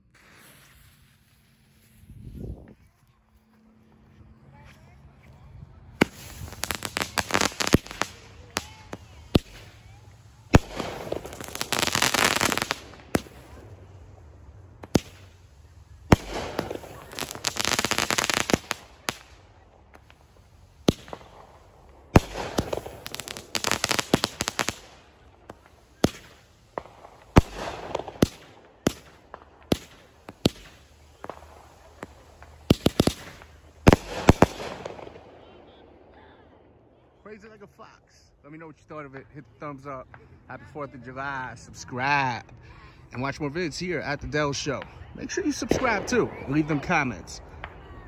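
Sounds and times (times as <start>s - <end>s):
firework crackling: 0.0s - 2.9s, 5.8s - 36.6s, 43.0s - 48.0s
firework launch bangs: 6.0s - 14.0s, 14.8s - 35.5s.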